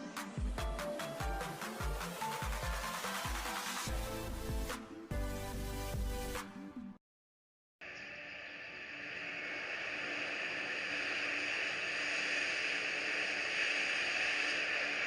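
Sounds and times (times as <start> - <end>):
steady rushing noise: 8.2 - 15.0.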